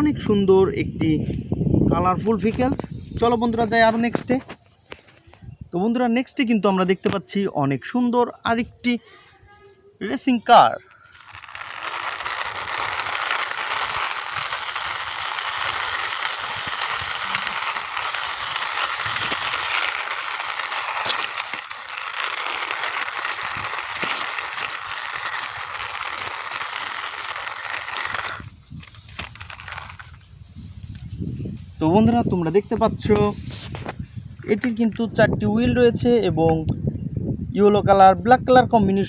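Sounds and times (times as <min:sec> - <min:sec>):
toy car wheels whirring rattle: 0:11.0 - 0:30.2.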